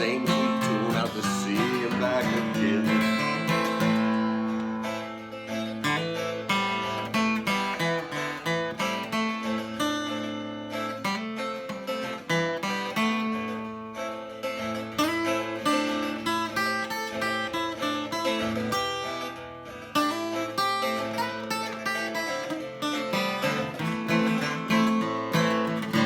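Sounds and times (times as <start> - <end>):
acoustic guitar picking and strumming: 0.0 - 26.0.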